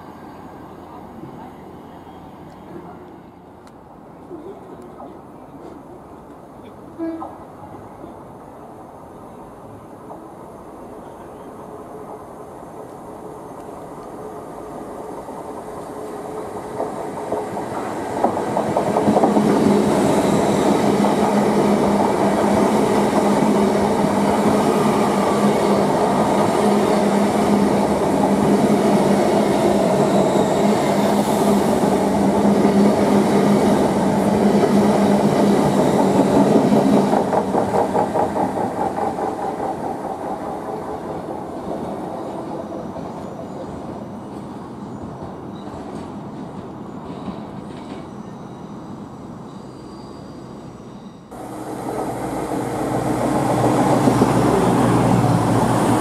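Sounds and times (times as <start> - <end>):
train hum: 0.0 - 56.0
train wheels clicking over rail joints: 35.4 - 41.2.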